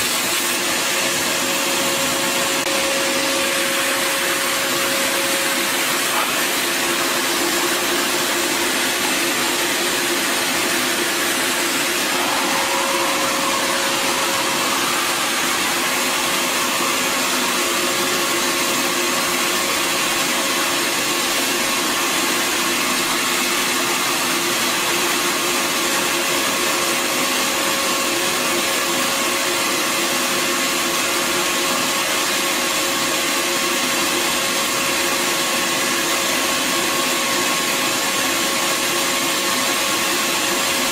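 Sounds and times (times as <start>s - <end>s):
vacuum motor whining: 0.0s - 27.2s.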